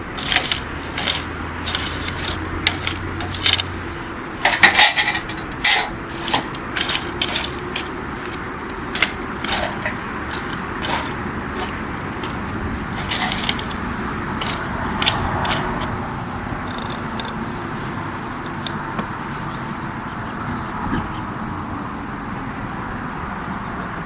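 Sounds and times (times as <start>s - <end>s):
campfire crackling and popping: 0.0s - 19.2s.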